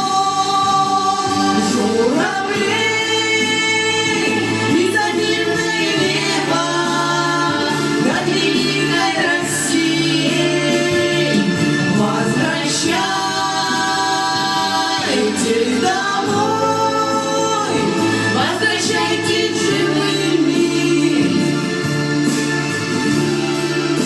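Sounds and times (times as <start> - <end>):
steady bass line: 0.0 - 24.0.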